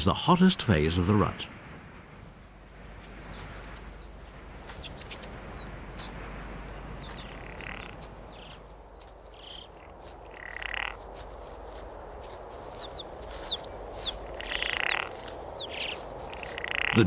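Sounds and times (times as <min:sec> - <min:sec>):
hoarse animal calls: 0:14.4 - 0:17.0.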